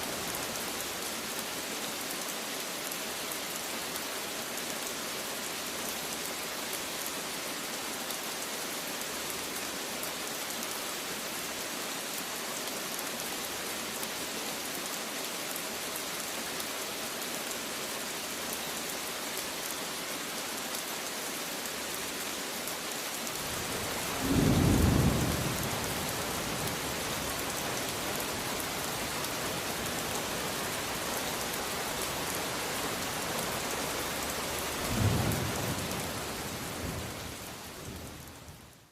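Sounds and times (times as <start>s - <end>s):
rain hissing: 21.8s - 38.8s.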